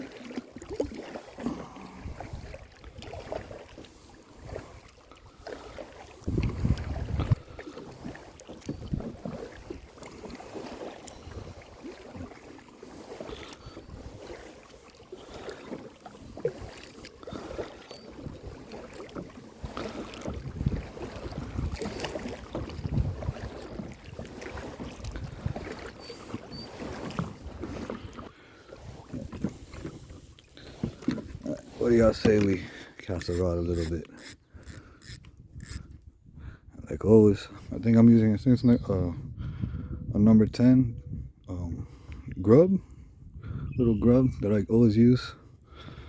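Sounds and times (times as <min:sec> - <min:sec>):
paddle splashing in water: 0:00.0 - 0:36.4
wind buffeting microphone: 0:04.4 - 0:09.9, 0:11.2 - 0:11.9, 0:19.6 - 0:28.2, 0:28.8 - 0:44.5.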